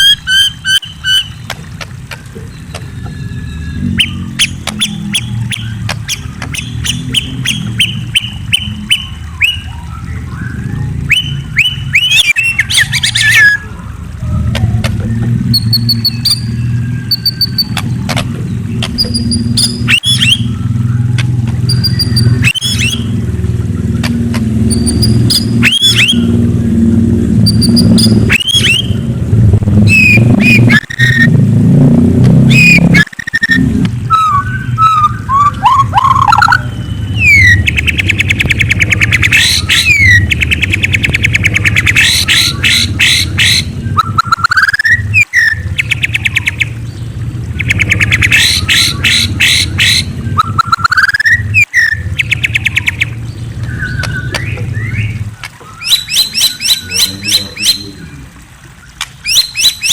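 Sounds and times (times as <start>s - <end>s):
bird singing whistled phrases: 0.0s - 1.4s, 2.5s - 13.7s, 15.0s - 17.8s, 19.0s - 23.1s, 24.7s - 26.3s, 27.4s - 29.0s, 29.9s - 31.3s, 32.5s - 46.7s, 47.6s - 57.8s, 59.2s - 59.9s
low rumble: 13.6s - 33.0s.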